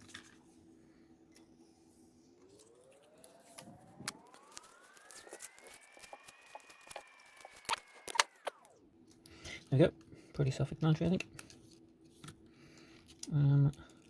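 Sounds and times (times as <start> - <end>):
faint rising whine: 0.5 - 9.1
electrical tape clicks and crackles: 2.4 - 10.1, 10.8 - 14.0
sharp clicks: 3.6 - 8.8.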